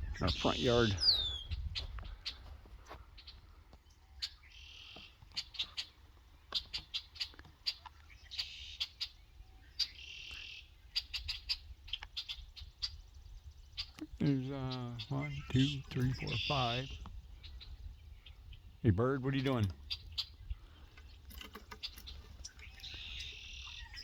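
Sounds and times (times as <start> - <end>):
birds chirping: 0.0 - 24.0
buzzy bird trills: 13.7 - 24.0.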